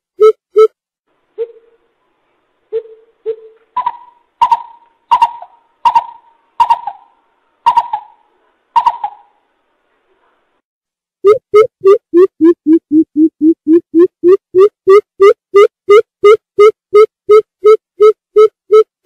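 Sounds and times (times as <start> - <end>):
coucal hooting: 2.7 - 9.4.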